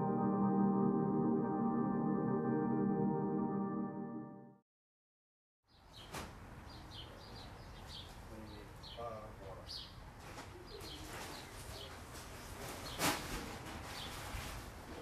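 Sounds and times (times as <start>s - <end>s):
small birds chirping: 5.7s - 12.0s.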